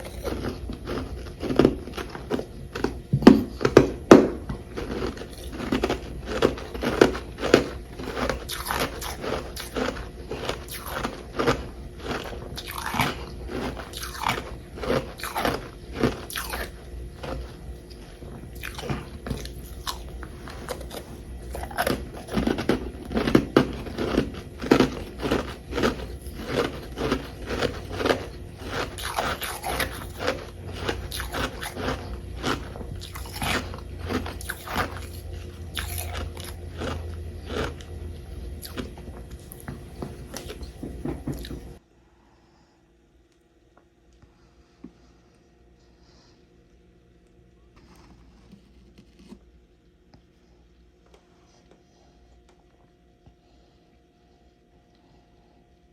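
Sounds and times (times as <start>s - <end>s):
soft chewing: 0.0s - 41.8s, 43.2s - 55.9s
crunching frost: 4.7s - 39.6s.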